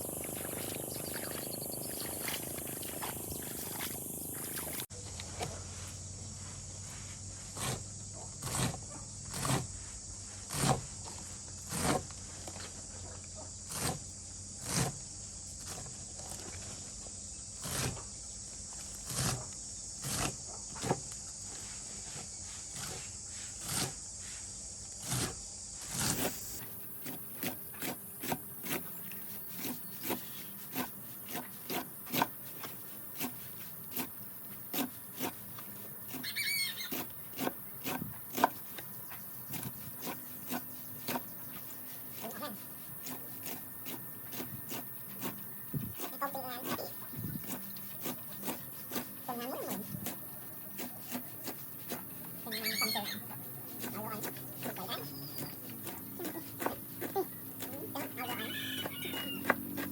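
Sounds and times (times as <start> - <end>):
pigs chewing and chomping: 0.0 - 4.9, 26.1 - 59.9.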